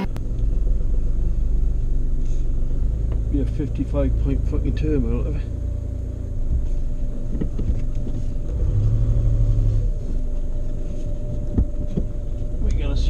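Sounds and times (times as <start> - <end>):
low drone: 0.0 - 1.7
car engine rumbling: 0.0 - 13.0.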